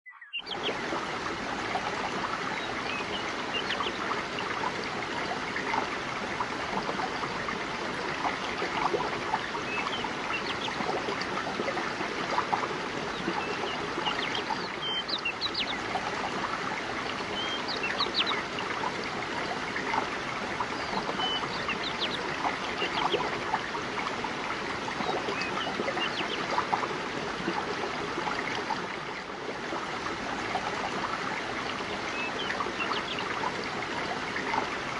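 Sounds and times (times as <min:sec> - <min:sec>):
high bird chirps: 0:00.0 - 0:00.6.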